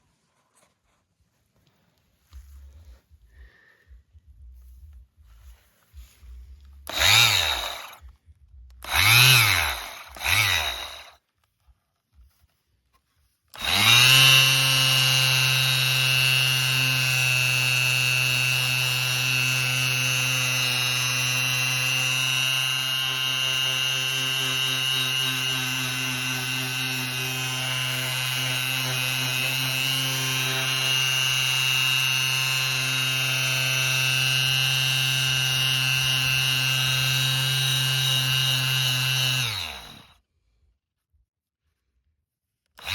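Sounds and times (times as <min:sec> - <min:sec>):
orbital sander motor whining: 0:06.8 - 0:08.1, 0:08.8 - 0:11.2, 0:13.6 - 0:40.1.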